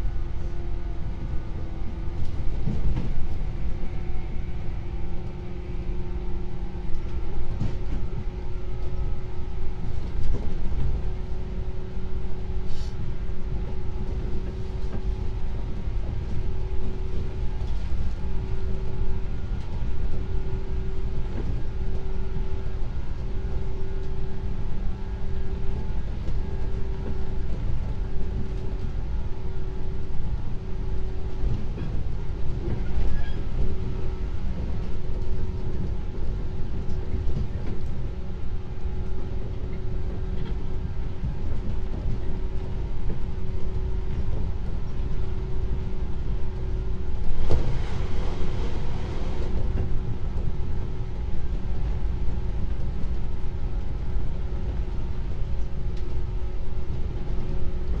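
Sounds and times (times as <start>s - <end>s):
train wheels rumbling on rails: 0.0s - 58.0s
train motor hum: 0.9s - 58.0s.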